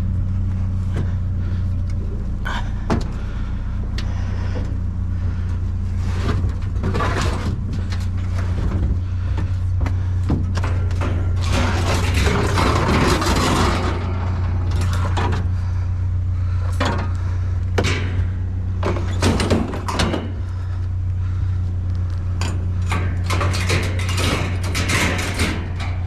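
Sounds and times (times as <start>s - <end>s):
steady low hum: 0.0s - 26.0s
household items clattering: 10.3s - 15.5s.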